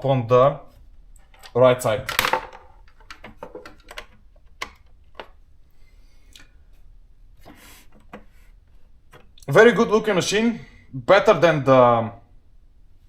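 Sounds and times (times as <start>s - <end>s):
typewriter clicks and knocks: 2.1s - 5.3s.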